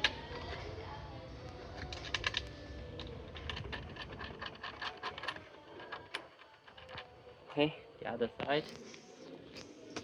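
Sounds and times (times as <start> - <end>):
bolt and nut clicking and rattling: 1.8 - 7.1.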